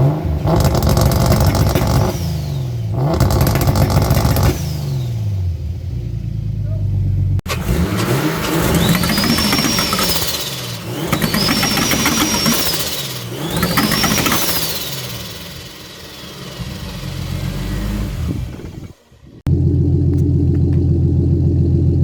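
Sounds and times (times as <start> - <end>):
raspy crackling exhaust: 0.0 - 2.2, 2.9 - 4.6
car engine revving: 0.0 - 22.0
turbo whistle: 11.1 - 15.1.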